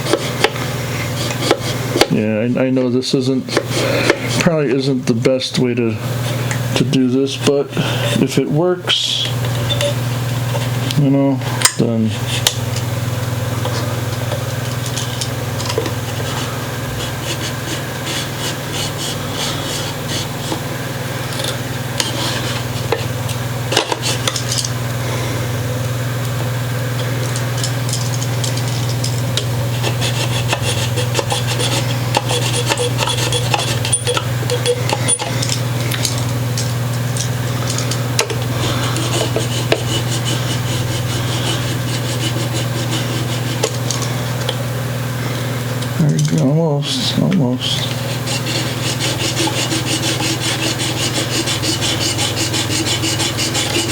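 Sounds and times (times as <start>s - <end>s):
knife sawing through wood: 0.0s - 2.0s, 3.5s - 4.5s, 16.0s - 20.6s, 22.0s - 24.3s, 29.6s - 35.2s, 38.5s - 43.8s, 46.8s - 53.9s.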